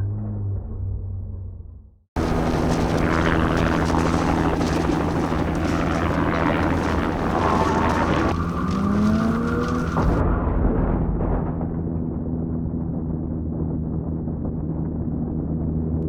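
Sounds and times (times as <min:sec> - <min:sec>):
car engine running hard: 0:02.2 - 0:10.2
tyres on loose gravel: 0:02.2 - 0:10.2.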